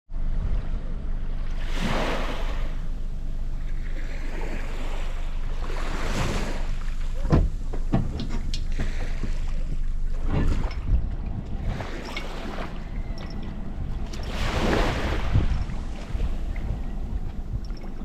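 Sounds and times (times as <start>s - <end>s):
wind buffeting microphone: 0.2s - 18.0s.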